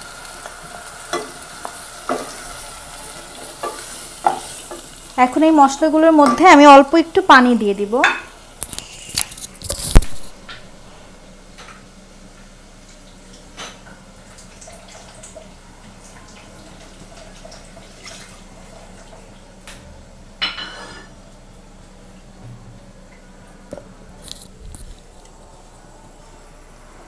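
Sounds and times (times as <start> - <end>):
water hissing in hot oil: 0.0 - 9.2, 12.0 - 19.6
masala frying in a pot: 0.0 - 27.0.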